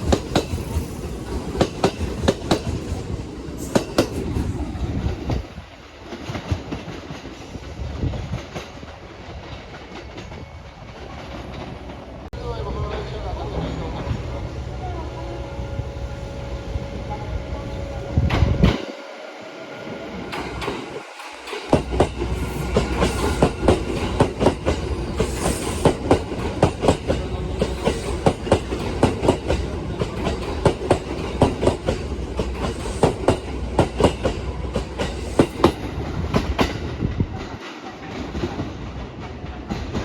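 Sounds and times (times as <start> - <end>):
train wheels clacking over rail joints: 0.0 - 12.0, 20.3 - 40.0
train rumble: 0.0 - 40.0.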